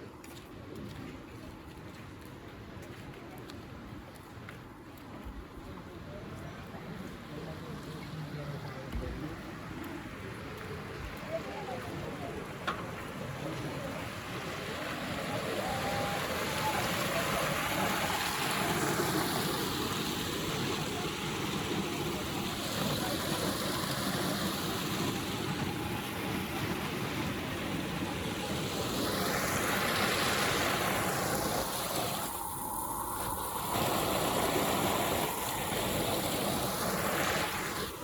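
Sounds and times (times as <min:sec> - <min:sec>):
rushing water: 0:03.8 - 0:38.0.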